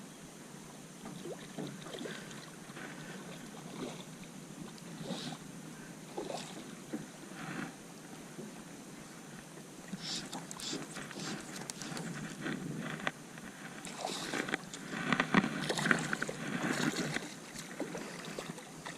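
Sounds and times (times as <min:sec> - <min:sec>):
water lapping at a boat: 0:00.0 - 0:18.9
small knocks and splashes: 0:13.8 - 0:18.9.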